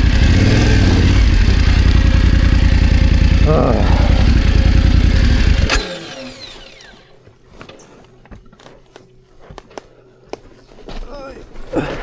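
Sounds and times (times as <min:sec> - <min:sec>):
motorcycle engine running: 0:00.0 - 0:06.9
falling whine: 0:00.0 - 0:07.0.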